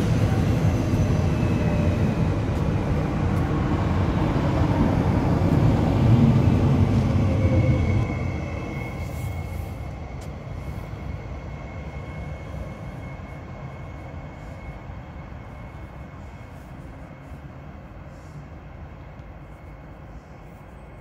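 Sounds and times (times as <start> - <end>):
electric train rumbling: 0.0 - 21.0.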